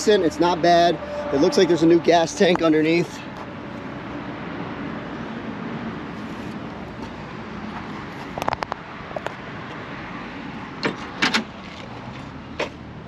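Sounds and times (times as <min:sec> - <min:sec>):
car door clunks: 0:10.8 - 0:11.5.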